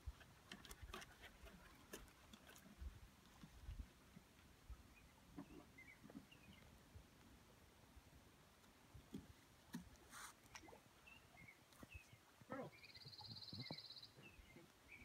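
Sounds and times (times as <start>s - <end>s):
faint bird chirps: 10.5s - 15.0s.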